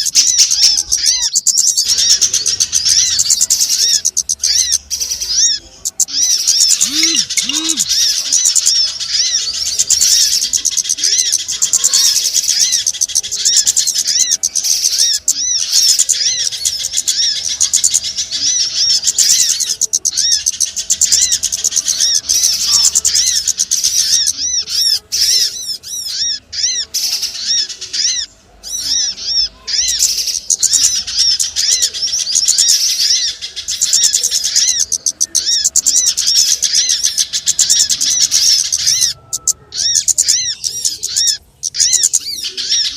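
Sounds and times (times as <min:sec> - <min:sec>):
small birds chirping rapidly: 0:00.0 - 0:42.9.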